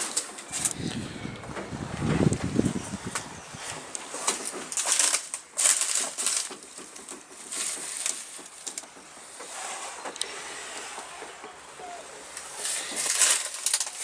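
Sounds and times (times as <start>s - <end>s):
dry forest litter crunching: 0.0s - 14.0s.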